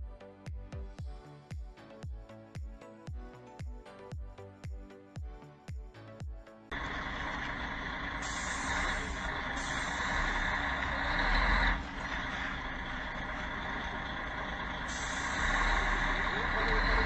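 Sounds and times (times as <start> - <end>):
vehicle road and engine noise: 6.7 - 17.0.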